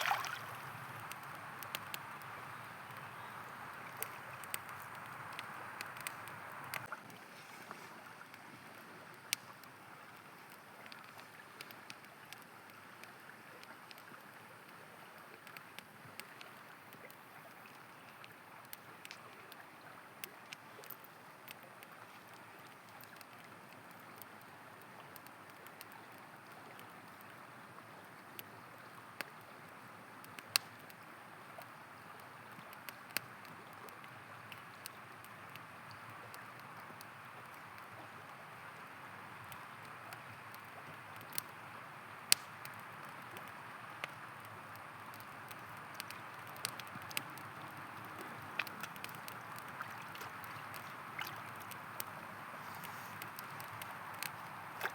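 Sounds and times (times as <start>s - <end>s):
river rushing: 0.0s - 1.0s
campfire crackling: 0.0s - 54.9s.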